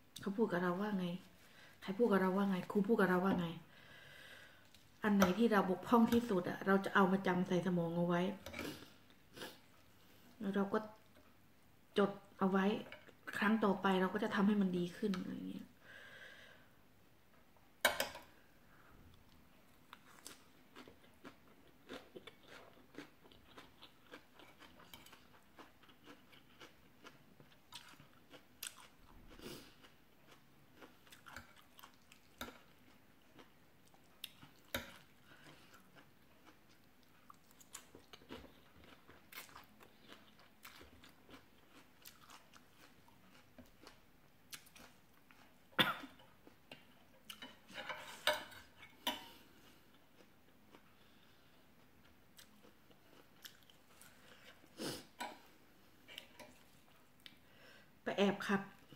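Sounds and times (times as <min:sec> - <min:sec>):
chewing and crunching noodles: 0:19.9 - 0:47.8, 0:49.6 - 0:55.4.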